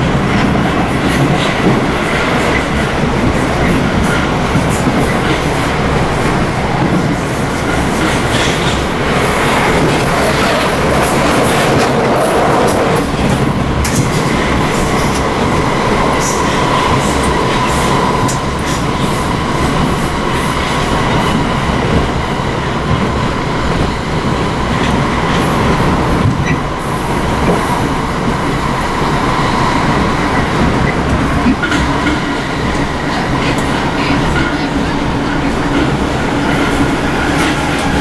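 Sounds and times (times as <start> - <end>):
passing train rush: 0.0 - 38.0
train carriage rumble and rattle: 0.0 - 38.0.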